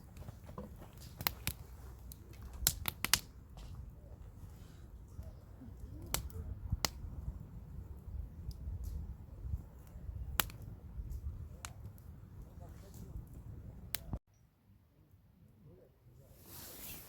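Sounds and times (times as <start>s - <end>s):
campfire crackling and popping: 0.0s - 4.6s, 5.2s - 14.2s.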